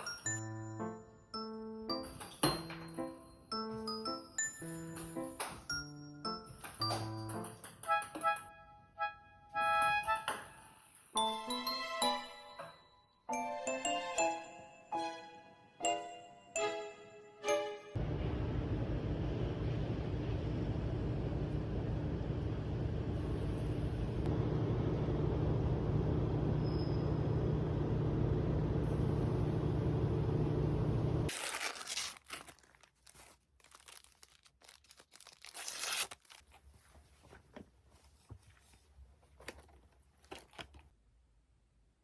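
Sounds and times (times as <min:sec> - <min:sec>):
faint crinkling: 0:31.3 - 0:41.0.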